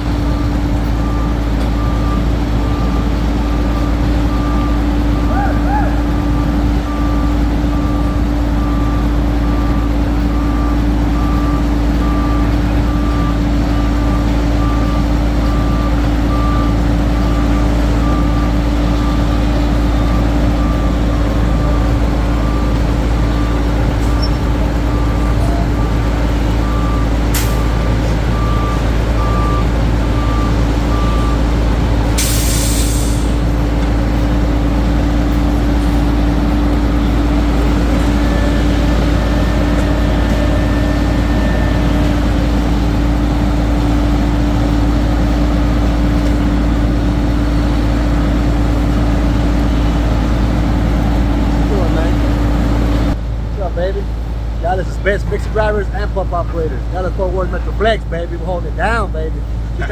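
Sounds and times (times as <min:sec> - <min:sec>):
diesel truck engine running: 0:00.0 - 0:59.9
backup alarm beeping: 0:00.1 - 0:33.5, 0:34.2 - 0:47.6
air brakes hissing: 0:32.2 - 0:33.5.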